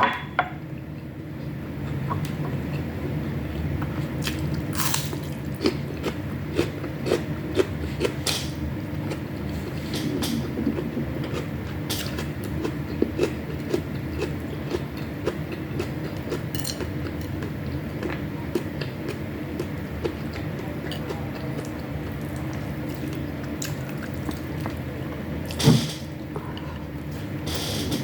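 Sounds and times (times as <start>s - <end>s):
low background noise: 0.0s - 28.0s
chewing food: 3.8s - 25.6s.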